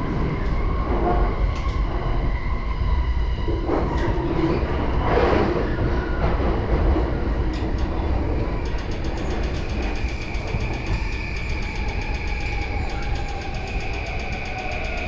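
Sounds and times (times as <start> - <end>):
train wheels rumbling on rail: 0.0 - 15.0
constant whine: 6.6 - 15.0
faint clicking from track: 7.4 - 15.0.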